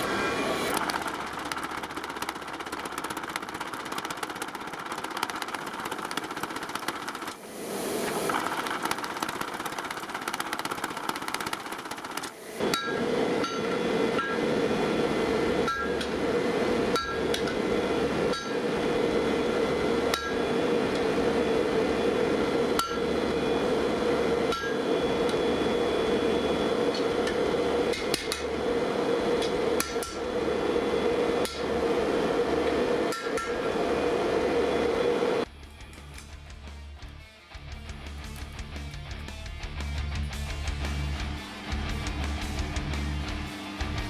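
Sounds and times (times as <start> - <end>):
forge burner roar: 0.0 - 44.0
hammer striking steel on anvil: 12.6 - 14.5, 15.6 - 16.2, 16.9 - 17.6, 18.3 - 18.6, 20.1 - 20.4, 22.8 - 23.1, 24.5 - 24.9, 29.4 - 30.2, 33.1 - 33.8.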